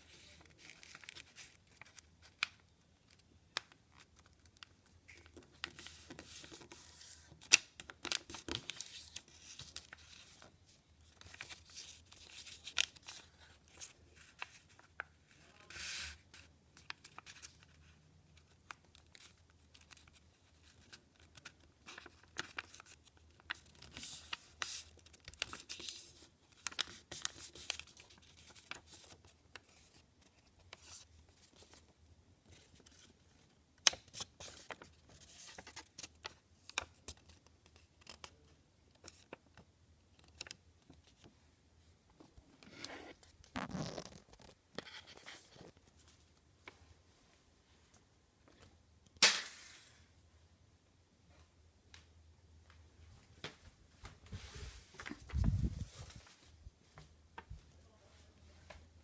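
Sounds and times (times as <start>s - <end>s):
paper rustling and crinkling: 0.0s - 17.8s, 18.4s - 31.9s, 32.5s - 38.3s, 42.2s - 46.4s, 54.0s - 58.8s.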